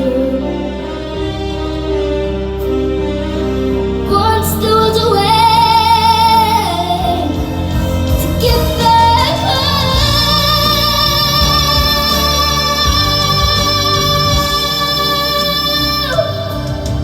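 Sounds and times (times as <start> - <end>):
instrumental accompaniment: 0.0 - 17.0
woman singing with vibrato: 4.1 - 17.0.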